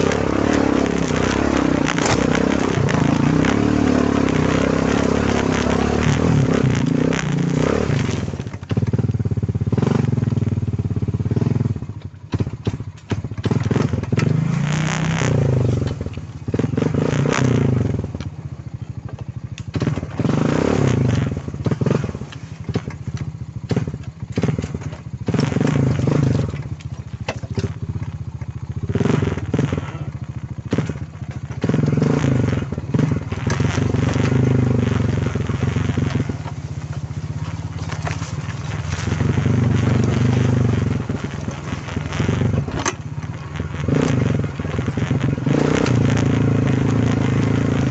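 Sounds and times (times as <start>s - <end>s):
quad bike engine revving: 0.0s - 47.9s.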